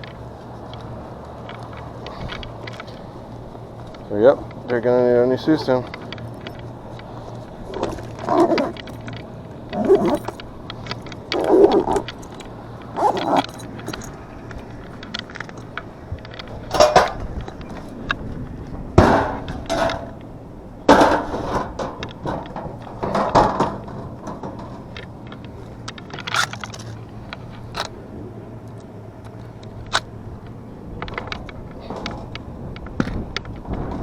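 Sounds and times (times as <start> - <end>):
metallic clinking and rattling: 0.0 - 18.1, 20.9 - 27.9.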